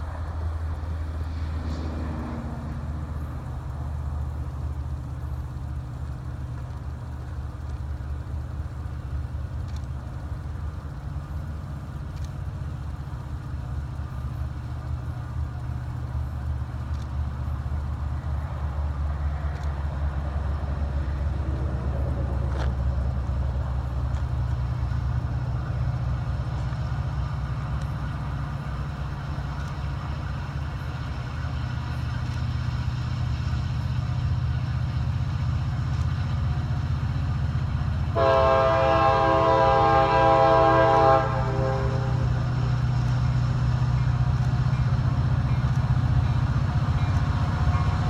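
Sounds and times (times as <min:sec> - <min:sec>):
diesel locomotive engine drone: 0:00.0 - 0:48.0
locomotive horn blowing: 0:38.2 - 0:42.4.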